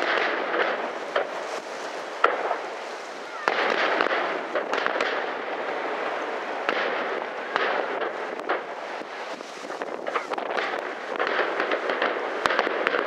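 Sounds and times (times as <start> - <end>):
firework crackling: 0.0 - 13.0
firework shells bursting: 6.6 - 13.0.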